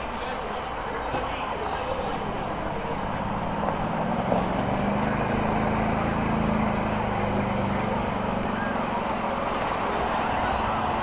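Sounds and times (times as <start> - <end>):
large vehicle engines droning: 0.0 - 11.0.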